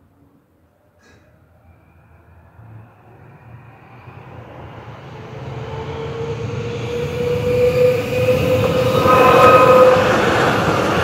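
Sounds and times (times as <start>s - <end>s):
electric railcar approaching: 0.7s - 11.0s
steady whine: 7.7s - 11.0s.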